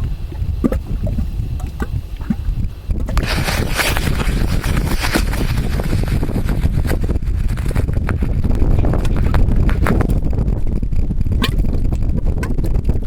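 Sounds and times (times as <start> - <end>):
mud pots bubbling: 0.0 - 13.0
wind rumble on microphone: 0.0 - 13.0.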